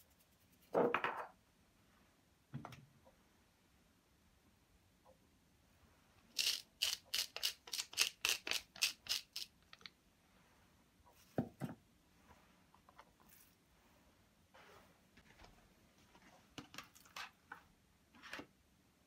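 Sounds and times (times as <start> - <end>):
pepper mill grinding: 6.3 - 9.9.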